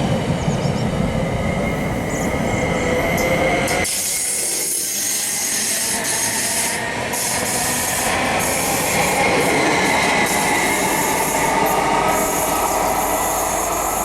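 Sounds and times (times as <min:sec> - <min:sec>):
train wheel and rail noise: 0:00.0 - 0:14.0.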